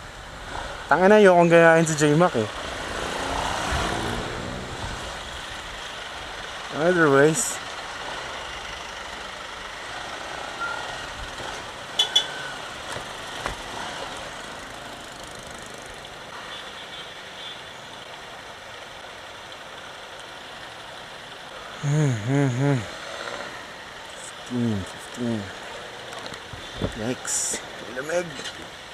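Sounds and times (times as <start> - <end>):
motorcycle riding in traffic: 0.0 - 28.9
brief tone: 10.6 - 11.0, 12.0 - 12.7.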